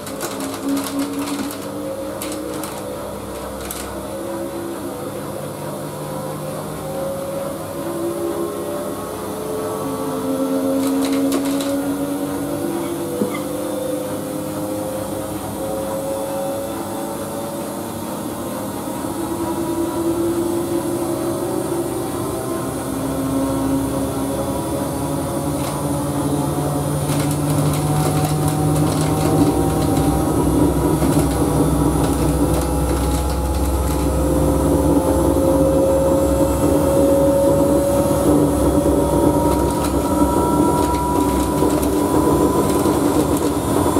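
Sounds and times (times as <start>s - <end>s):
washing machine drum whine: 0.0s - 43.9s
washing machine rumble: 10.2s - 43.9s.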